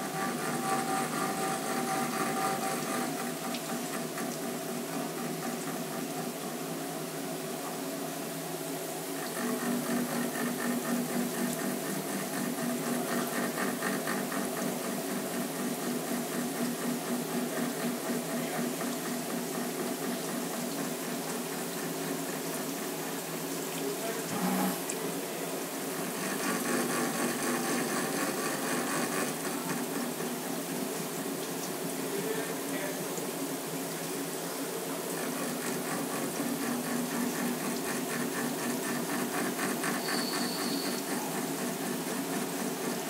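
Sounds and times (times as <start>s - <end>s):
milling machine cutting steel: 0.0s - 6.6s, 9.1s - 21.8s, 24.2s - 25.0s, 25.9s - 30.8s.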